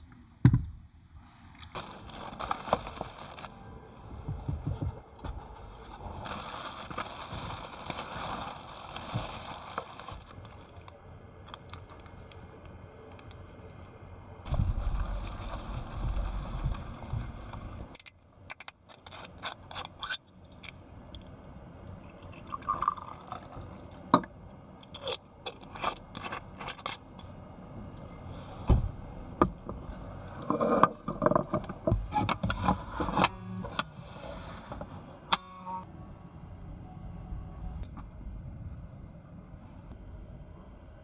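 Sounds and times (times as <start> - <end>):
low rumble: 14.5 - 18.0
objects clicking and scraping: 14.5 - 22.0, 24.2 - 28.4.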